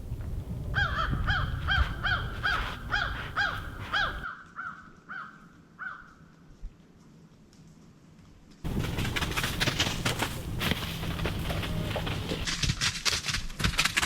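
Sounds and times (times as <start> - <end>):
bird calling: 0.8 - 6.1, 9.1 - 12.5.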